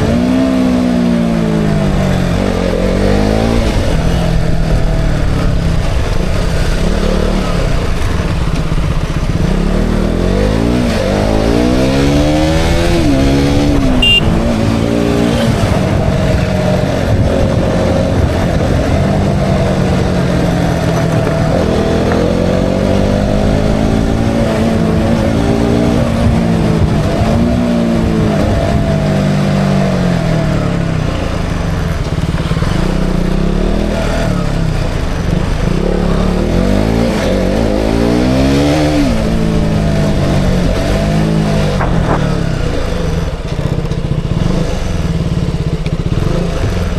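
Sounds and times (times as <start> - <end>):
motorcycle engine revving: 0.0 - 46.9
high beep: 13.9 - 14.4.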